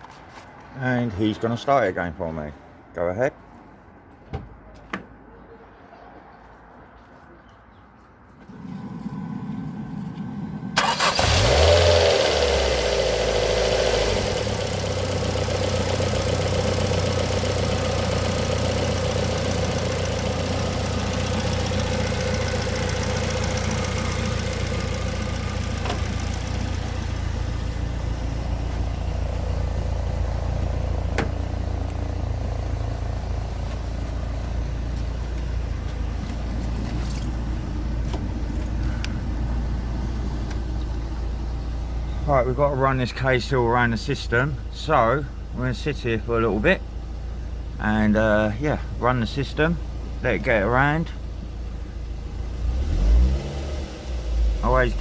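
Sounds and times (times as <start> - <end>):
car engine starting and idling: 8.4 - 55.0
starter motor cranking: 10.8 - 27.1.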